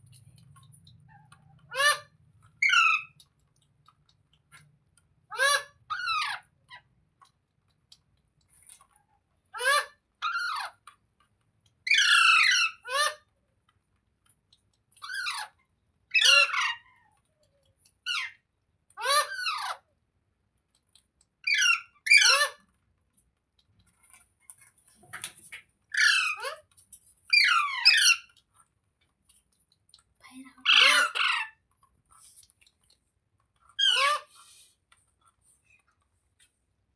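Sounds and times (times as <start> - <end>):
parrot squawking: 1.1 - 3.2, 5.3 - 6.8, 9.6 - 10.8, 11.9 - 13.2, 15.0 - 17.0, 19.0 - 19.8, 21.5 - 22.6, 25.9 - 26.7, 27.3 - 28.3, 30.6 - 31.6, 33.8 - 34.4.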